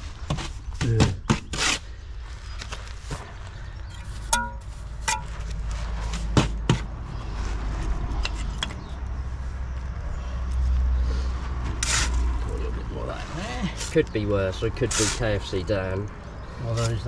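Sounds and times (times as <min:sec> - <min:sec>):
trowel tapping and scraping bricks: 0:00.3 - 0:01.8, 0:06.0 - 0:06.9
metallic ring: 0:04.3 - 0:05.3.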